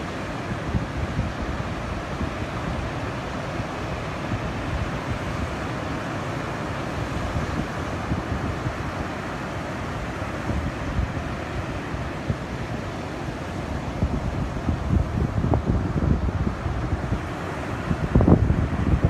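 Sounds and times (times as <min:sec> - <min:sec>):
ocean surf breaking: 0:00.0 - 0:19.0
wind buffeting microphone: 0:13.7 - 0:19.0.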